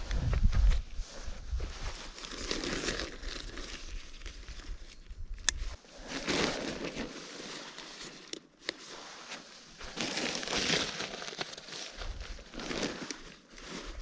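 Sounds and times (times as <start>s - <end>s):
tent fabric rustling: 1.0s - 4.9s, 5.7s - 14.0s.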